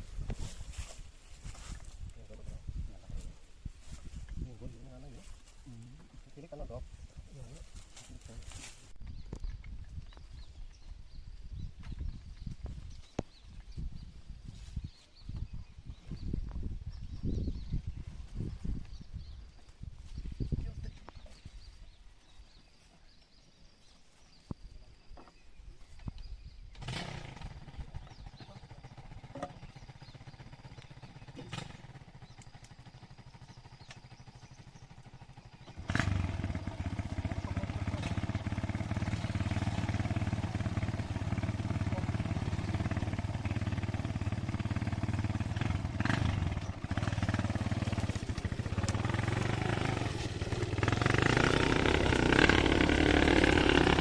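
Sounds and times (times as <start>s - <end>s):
motorcycle engine running: 26.8s - 54.0s.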